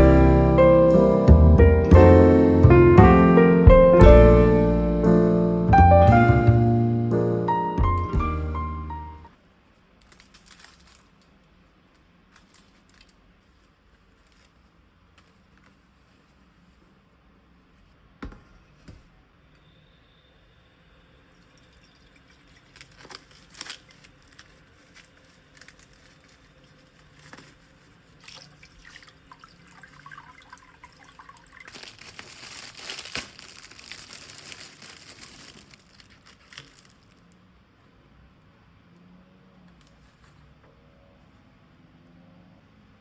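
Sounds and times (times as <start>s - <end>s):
packaging crinkling: 10.0s - 11.5s, 12.3s - 14.6s, 22.6s - 37.4s.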